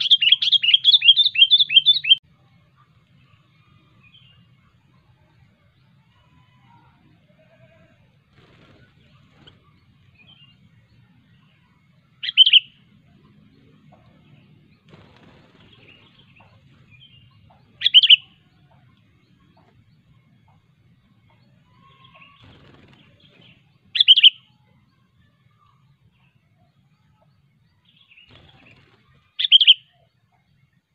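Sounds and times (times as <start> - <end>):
birds chirping faintly: 0.0 - 30.9.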